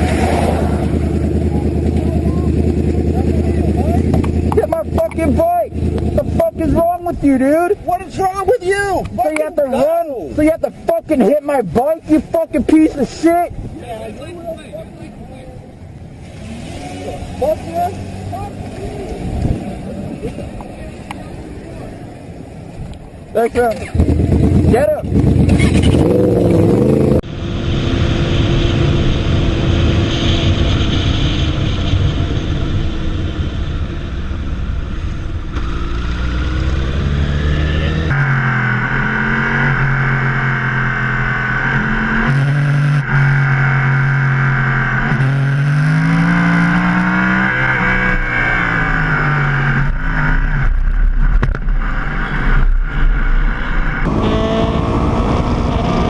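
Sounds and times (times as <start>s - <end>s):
wind rush: 0.0s - 1.8s, 23.8s - 38.1s
motorcycle engine revving: 0.0s - 7.0s, 16.1s - 20.5s, 23.7s - 56.0s.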